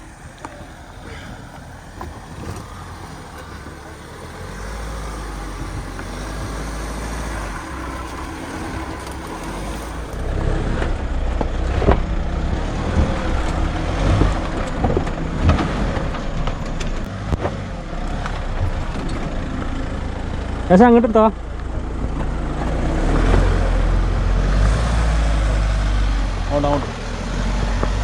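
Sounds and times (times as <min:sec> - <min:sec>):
off-road vehicle engine under load: 0:00.0 - 0:28.0
knocks and thumps: 0:07.8 - 0:17.6.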